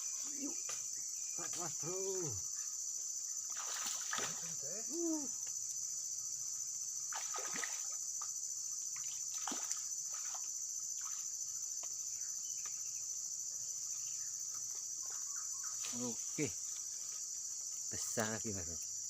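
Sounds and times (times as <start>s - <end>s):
high-pitched insect chorus: 0.0s - 19.0s
water splashing: 3.5s - 4.6s, 7.1s - 8.0s, 9.0s - 11.3s.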